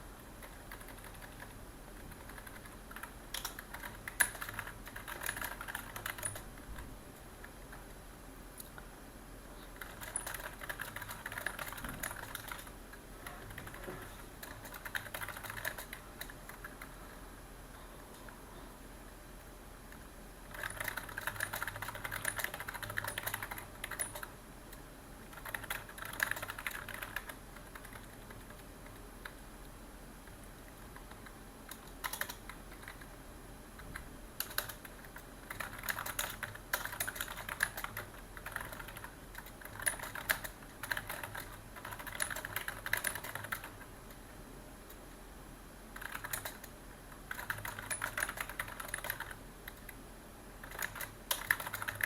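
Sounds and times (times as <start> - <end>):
typing on computer keyboard: 0.4 - 6.5, 9.7 - 17.0, 19.9 - 29.4, 30.3 - 33.1, 33.8 - 43.9, 46.0 - 50.0, 50.6 - 52.0.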